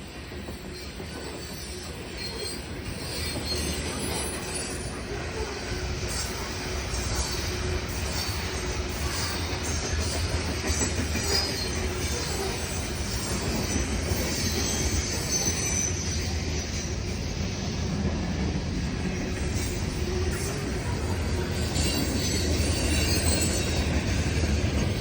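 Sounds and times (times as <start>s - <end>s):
train wheels rumbling on track: 0.0s - 25.0s
high-pitched wheel squeal: 20.3s - 24.4s.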